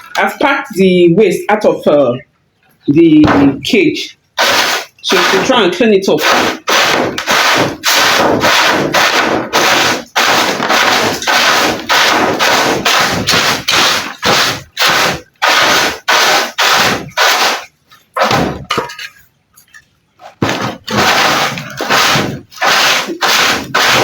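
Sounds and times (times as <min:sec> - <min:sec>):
rough scrubbing on a cage: 0:04.4 - 0:18.5, 0:20.4 - 0:24.0.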